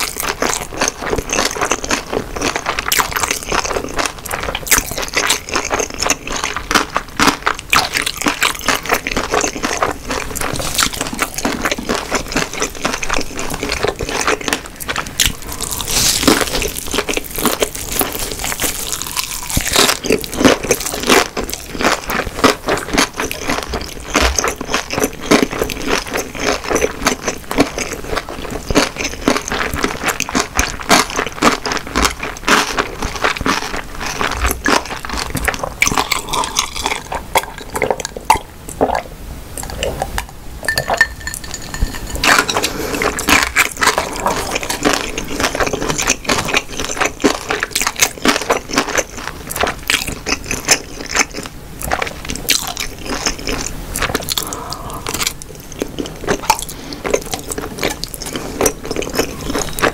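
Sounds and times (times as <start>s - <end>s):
close-miked chewing: 0.0s - 39.0s, 39.6s - 59.9s.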